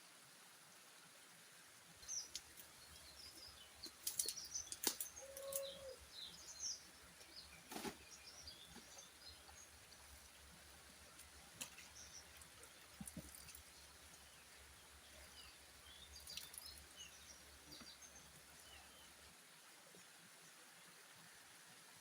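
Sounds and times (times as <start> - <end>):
small birds chirping: 2.0 - 19.2.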